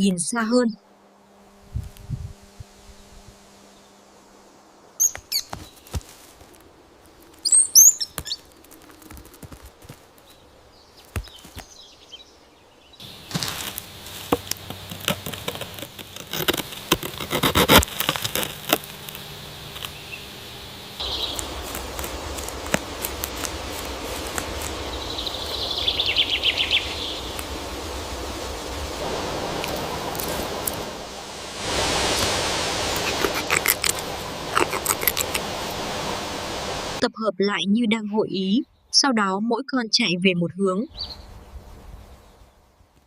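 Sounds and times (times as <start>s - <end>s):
small birds chirping: 4.9s - 6.3s, 7.0s - 15.3s, 18.8s - 27.8s, 33.0s - 35.6s, 40.9s - 42.6s
falling bird call: 5.0s - 6.6s, 7.2s - 9.6s, 19.1s - 28.4s
sharp clicks and rustles: 8.1s - 10.4s, 13.3s - 20.0s.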